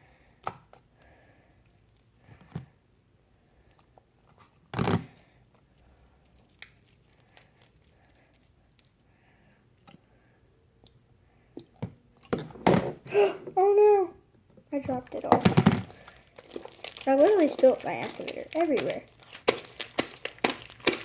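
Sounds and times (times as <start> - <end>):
slime squeezed and stretched: 15.8 - 21.0.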